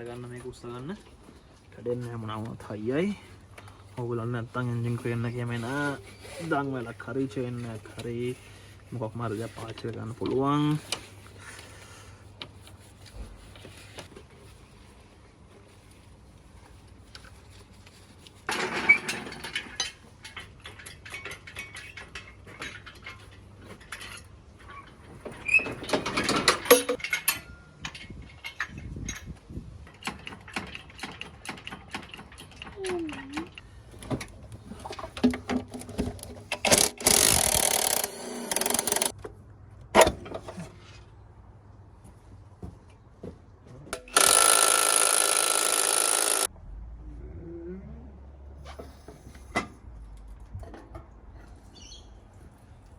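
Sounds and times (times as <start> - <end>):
metal clanks and knocks: 25.6 - 29.3
steady mechanical noise: 36.6 - 39.1, 44.0 - 46.9.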